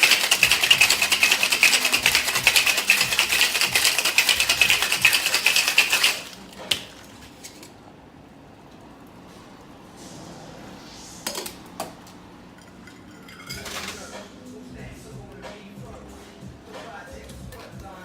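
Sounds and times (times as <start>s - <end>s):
cocktail shaker rattling: 0.0s - 6.8s, 13.1s - 14.2s.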